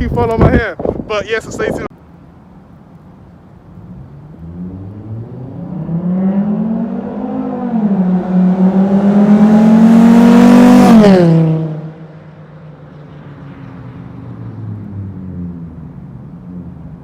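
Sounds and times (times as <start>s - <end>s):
car exhaust revving: 4.3s - 12.3s.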